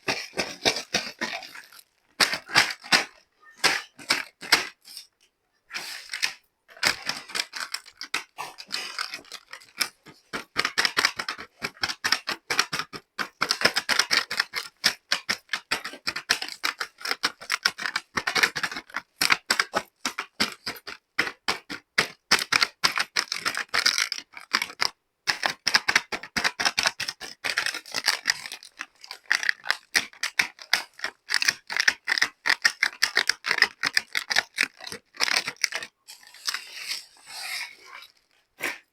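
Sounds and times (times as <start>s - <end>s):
plastic toy pieces clicking: 6.0s - 36.9s.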